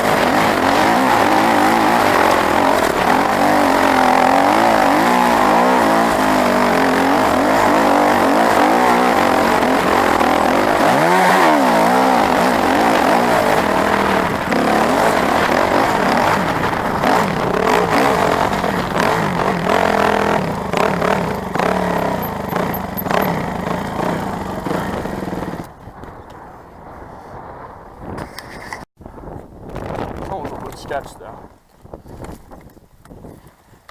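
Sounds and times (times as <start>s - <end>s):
off-road motorcycle engine revving: 0.0s - 25.7s.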